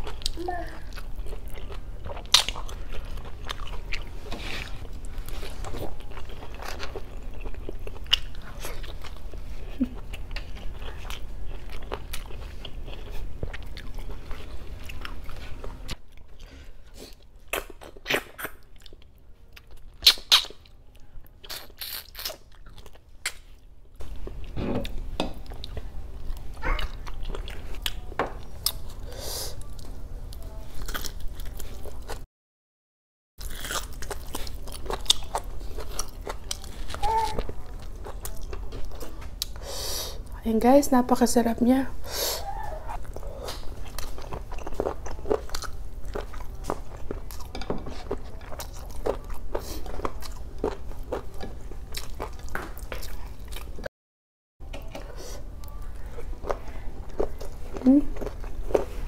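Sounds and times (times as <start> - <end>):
chewing and mouth smacks: 0.0 - 28.9, 33.4 - 39.6, 42.9 - 53.9.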